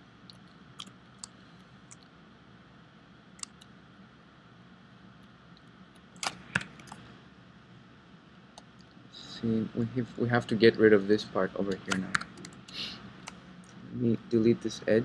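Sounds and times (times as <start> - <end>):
faint steady background hum: 0.0 - 15.0
computer mouse and keyboard clicks: 3.4 - 3.7, 6.2 - 7.1, 11.7 - 13.8.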